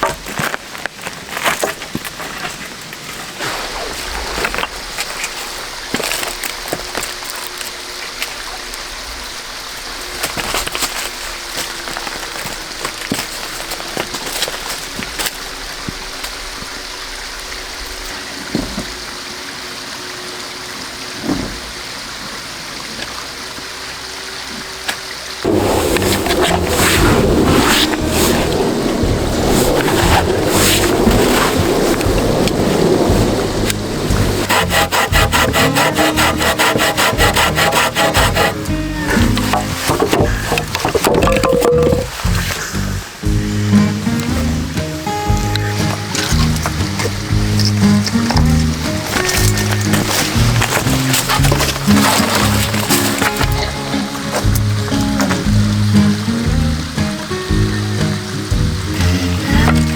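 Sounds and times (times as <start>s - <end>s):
stream rushing: 0.0s - 59.9s
blade scraping wood: 25.4s - 42.8s, 45.9s - 53.8s.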